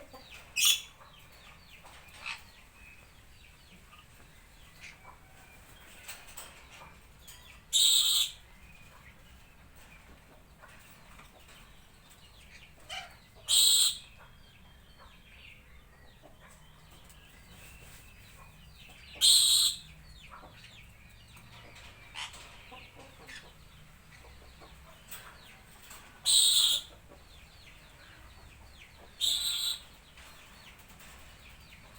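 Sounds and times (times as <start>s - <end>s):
faint bird chirps: 26.2s - 27.0s, 29.1s - 30.0s.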